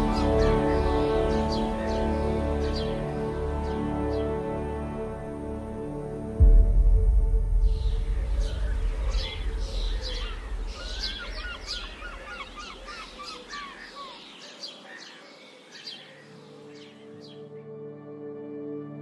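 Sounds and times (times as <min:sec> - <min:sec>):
songbirds singing: 0:00.0 - 0:06.3, 0:07.5 - 0:17.7
low rumble: 0:06.2 - 0:12.9.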